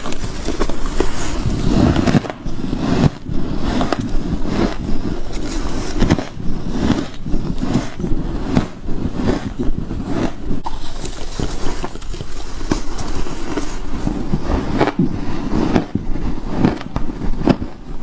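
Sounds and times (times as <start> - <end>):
chewing frost crunches: 0.0 - 17.8.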